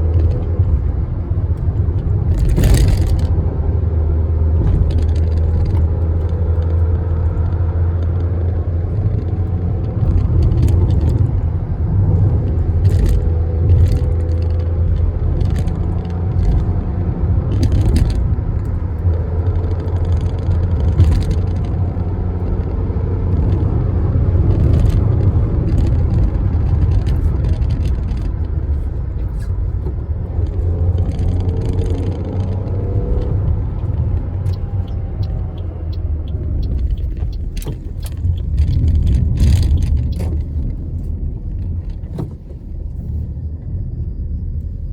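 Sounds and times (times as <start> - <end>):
car engine and road drone: 0.0 - 44.9.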